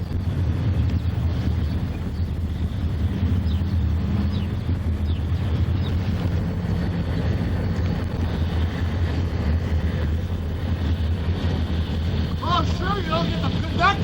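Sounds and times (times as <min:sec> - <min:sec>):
locomotive engine droning: 0:00.0 - 0:14.0
wind noise on microphone: 0:00.0 - 0:14.0.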